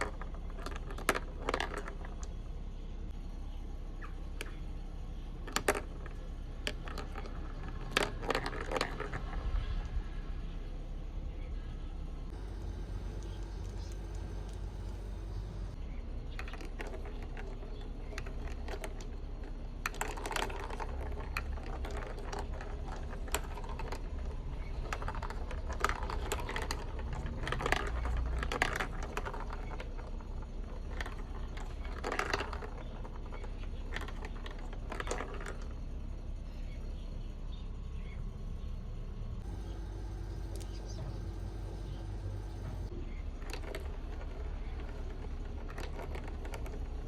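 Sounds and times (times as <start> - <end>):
marbles clattering on plastic track: 0.0 - 2.4, 5.4 - 9.4, 16.4 - 35.8, 43.4 - 47.0.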